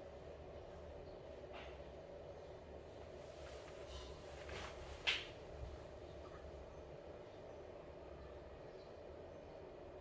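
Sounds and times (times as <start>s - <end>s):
faint electrical hum: 0.0s - 10.0s
soft rustle: 3.2s - 5.7s.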